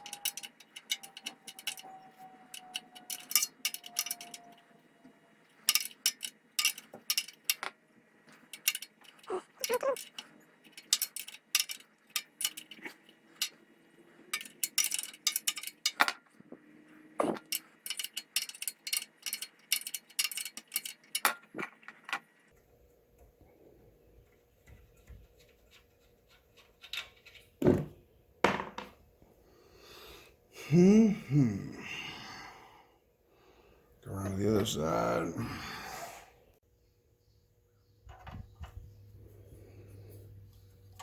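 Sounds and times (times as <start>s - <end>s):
hand tools clinking against metal: 0.0s - 4.7s, 5.5s - 22.0s.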